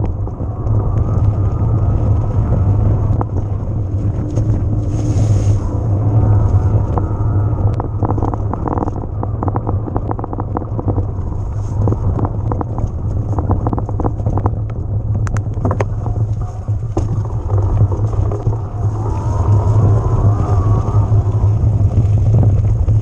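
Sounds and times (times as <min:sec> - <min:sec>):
bike rumbling over rough ground: 0:00.0 - 0:23.0
wind buffeting microphone: 0:00.0 - 0:23.0
rattles and clicks from bike frame: 0:08.0 - 0:23.0.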